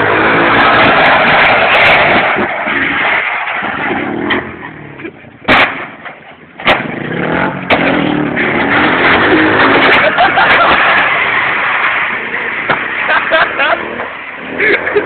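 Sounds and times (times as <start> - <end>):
minibike engine revving: 0.0 - 1.3
sharp bangs: 0.0 - 15.0.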